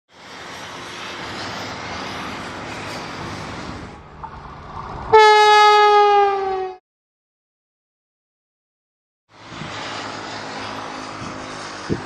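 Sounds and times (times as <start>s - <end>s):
electric train rushing past: 0.1s - 6.8s, 9.3s - 12.0s
train horn blast: 5.1s - 6.8s.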